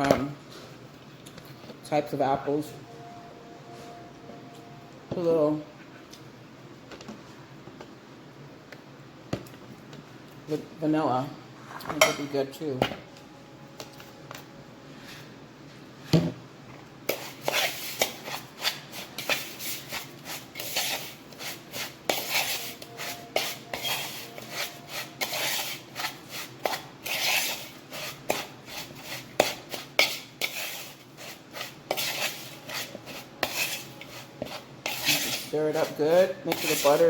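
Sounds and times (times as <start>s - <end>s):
spoon scraping mixture in bowl: 17.0s - 37.0s.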